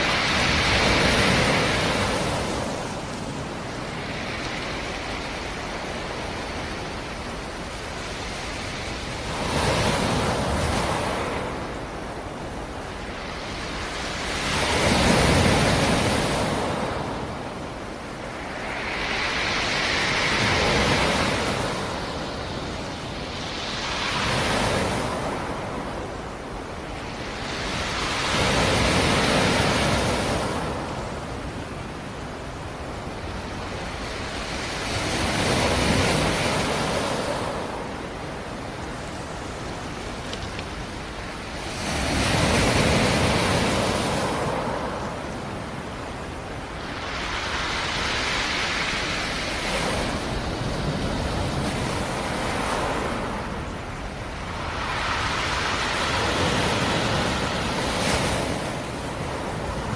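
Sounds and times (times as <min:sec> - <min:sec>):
waves breaking on rocky shore: 0:00.0 - 0:59.9
wind rushing: 0:12.7 - 0:29.0, 0:46.4 - 0:59.9.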